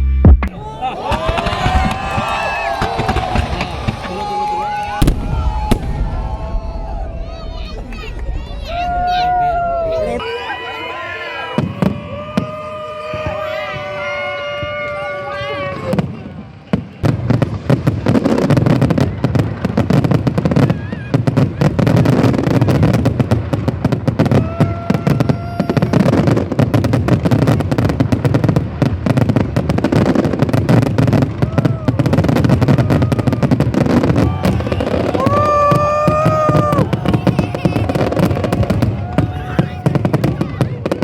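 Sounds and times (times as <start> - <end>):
people's voices: 0.4 - 17.1, 33.9 - 41.0
fireworks bangs and crackles: 0.4 - 41.0.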